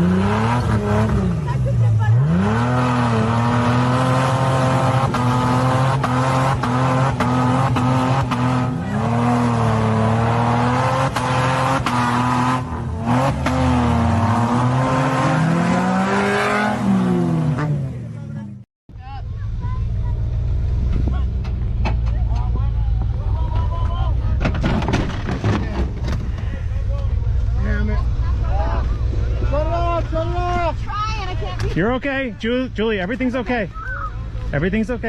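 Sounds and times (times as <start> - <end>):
engine revving under load: 0.0 - 18.2.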